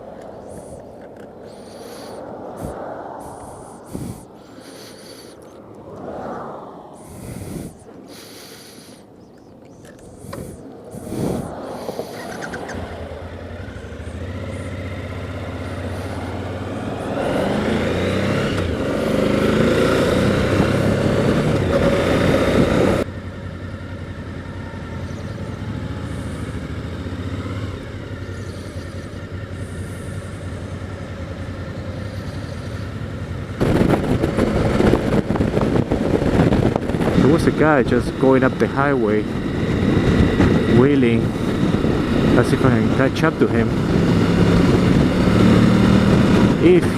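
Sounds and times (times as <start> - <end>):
wind noise: 0.0 - 23.1, 33.6 - 46.9
motorcycle engine accelerating: 9.8 - 46.9.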